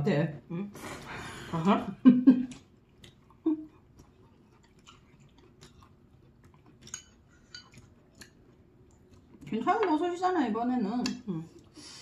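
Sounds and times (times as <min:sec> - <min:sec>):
person chewing noodles: 0:02.4 - 0:09.5.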